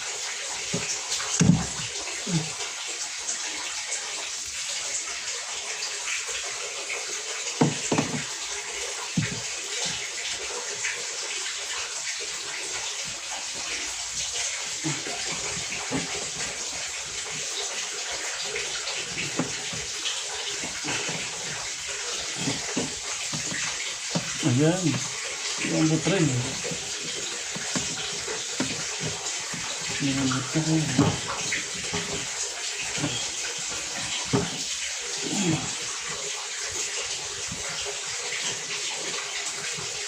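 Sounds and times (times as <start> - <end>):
water running: 0.0 - 40.0
knocks and handling thumps: 0.7 - 2.0, 7.6 - 8.4, 9.1 - 10.1, 13.0 - 17.7, 18.5 - 34.7.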